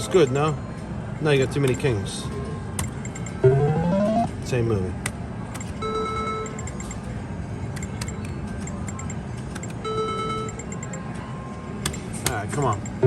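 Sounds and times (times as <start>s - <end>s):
slot machine beeps: 3.0s - 4.3s
casino floor din: 3.4s - 4.3s.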